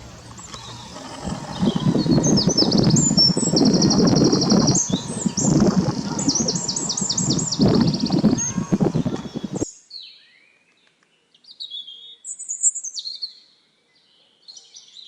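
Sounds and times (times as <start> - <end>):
low rumbling noise: 0.0 - 9.6.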